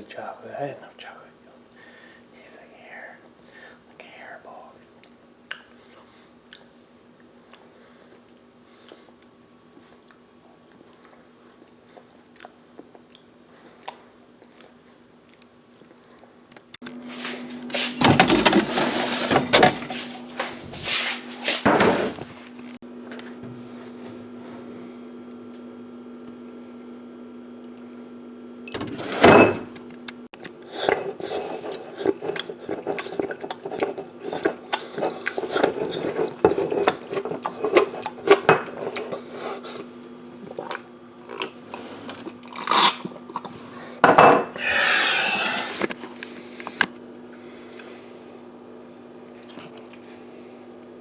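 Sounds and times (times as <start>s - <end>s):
objects clattering and knocking: 17.8s - 20.9s, 21.6s - 22.4s.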